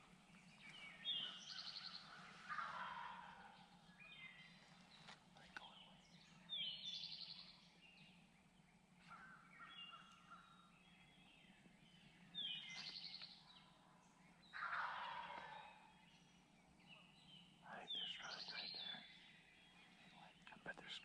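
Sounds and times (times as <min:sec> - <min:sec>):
faint bird calls: 0:00.0 - 0:07.7, 0:09.0 - 0:21.0
turkeys gobbling: 0:02.5 - 0:03.4, 0:14.6 - 0:15.5.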